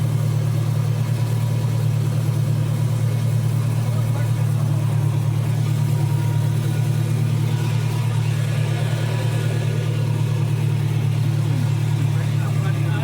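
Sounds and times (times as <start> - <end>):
miniature train engine humming: 2.2 - 13.0.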